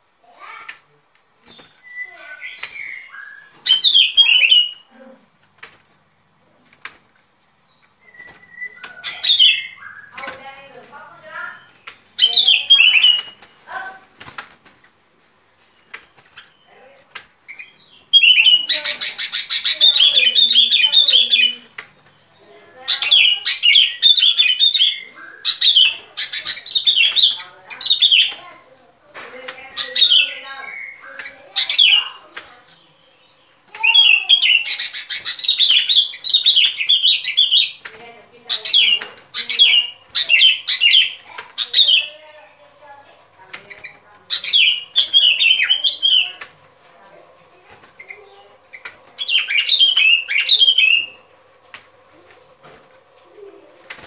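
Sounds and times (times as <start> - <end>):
bird calls and clicks: 0.4 - 15.0, 15.6 - 54.0
bulbul song: 7.6 - 13.9, 29.4 - 51.8.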